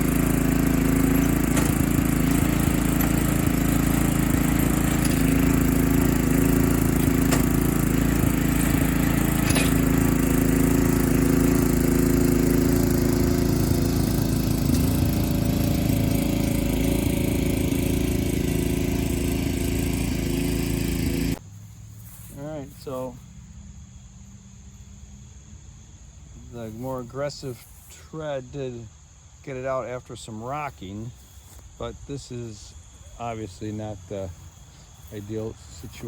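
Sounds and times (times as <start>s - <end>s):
lawn tractor engine straining: 0.0s - 21.4s.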